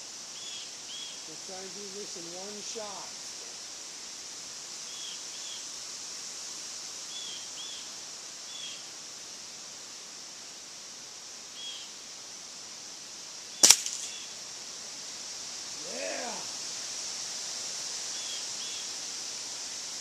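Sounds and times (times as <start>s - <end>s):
outdoor hiss: 0.0s - 20.0s
air rifle crack: 13.6s - 14.2s.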